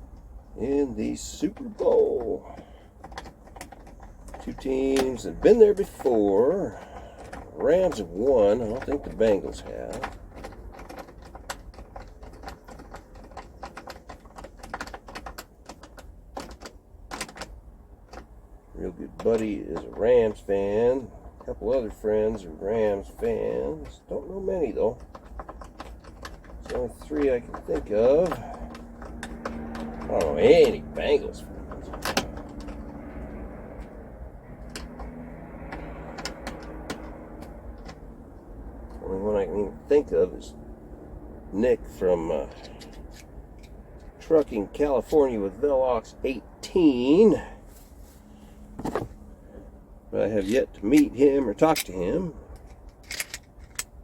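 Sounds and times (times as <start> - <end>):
tools clicking and tapping: 1.5 - 18.3, 19.1 - 20.5, 21.2 - 39.0, 42.3 - 44.6, 50.4 - 53.9.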